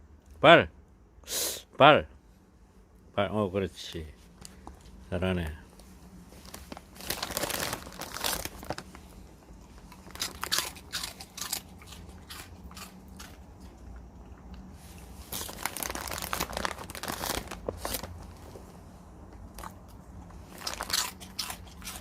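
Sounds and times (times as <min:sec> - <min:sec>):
dog crunching crackers: 0:06.4 - 0:18.6, 0:19.2 - 0:22.0.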